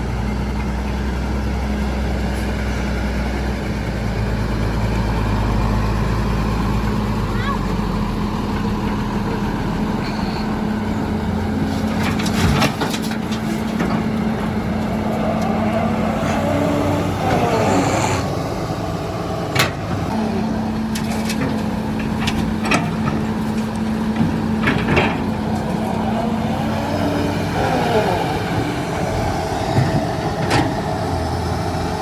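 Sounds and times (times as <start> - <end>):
heavy machinery diesel engine running: 0.0 - 32.0
sharp knocks and clanks: 20.9 - 26.0.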